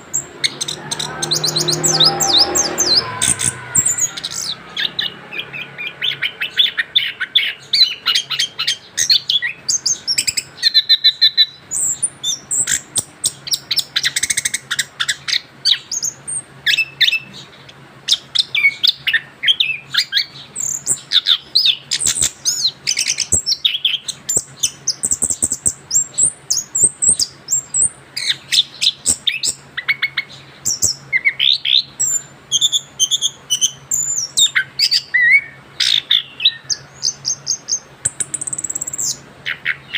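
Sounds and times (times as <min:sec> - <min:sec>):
thrush singing: 0:00.0 - 0:08.9.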